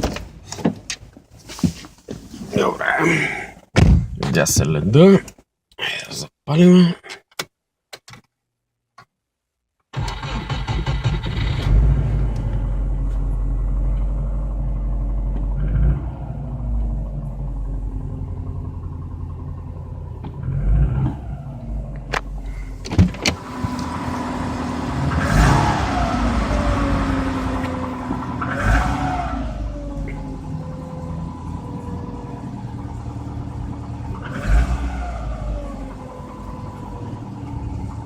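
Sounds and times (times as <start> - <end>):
car engine revving: 10.0 - 38.0.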